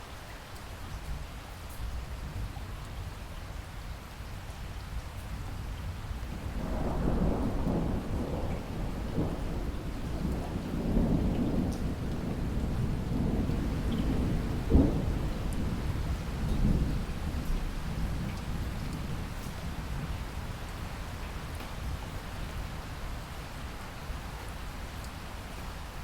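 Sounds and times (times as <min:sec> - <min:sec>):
steady rain: 0:00.0 - 0:26.0
roll of thunder: 0:06.3 - 0:18.3.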